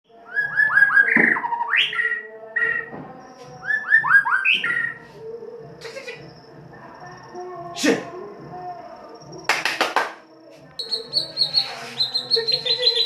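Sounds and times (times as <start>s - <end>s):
songbird whistling song: 0.1s - 5.2s, 10.8s - 13.0s.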